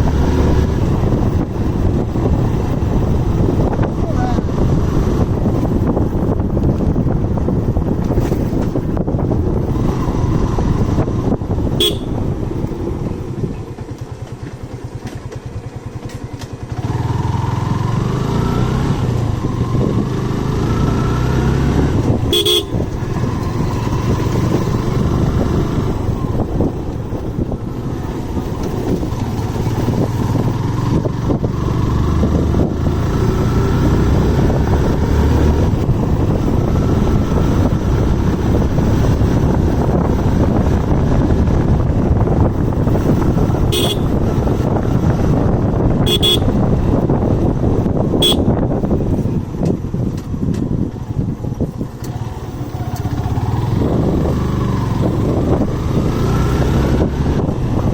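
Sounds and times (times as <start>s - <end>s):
motorcycle engine accelerating: 0.0s - 57.9s
short horn beep: 11.8s - 12.2s, 22.3s - 22.8s, 43.7s - 44.1s, 46.1s - 46.6s, 48.2s - 48.5s.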